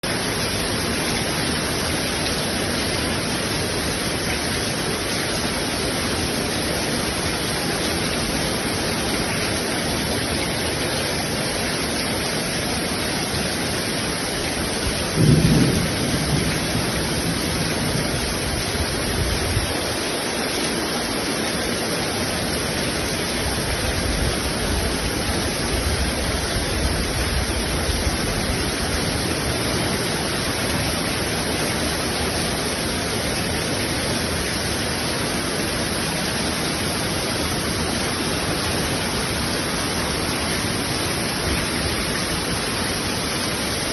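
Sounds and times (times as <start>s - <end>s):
heavy rain on a tin roof: 0.0s - 43.9s
thunder clap and rumble: 15.1s - 18.6s.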